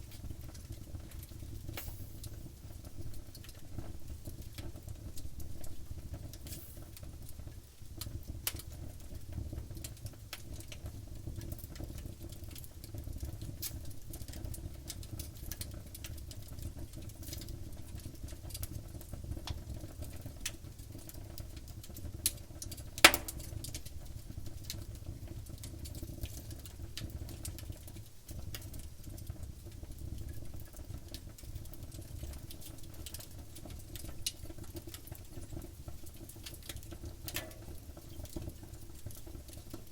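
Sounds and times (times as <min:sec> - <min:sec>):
wood fire crackling: 0:00.0 - 0:39.9
loud sharp pop: 0:23.0 - 0:23.5.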